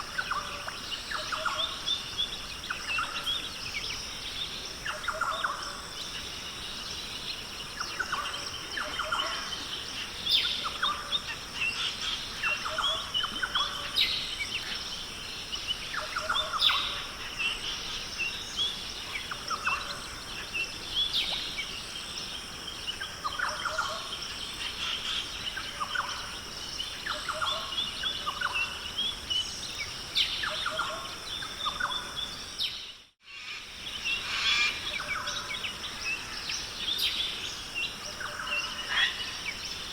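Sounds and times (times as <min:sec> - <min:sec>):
birds chirping and calling: 0:33.4 - 0:39.6.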